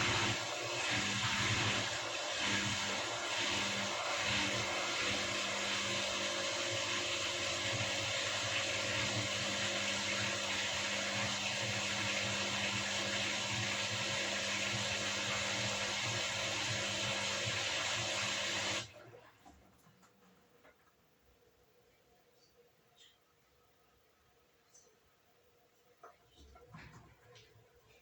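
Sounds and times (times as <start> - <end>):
washing machine whirring: 0.0 - 20.7.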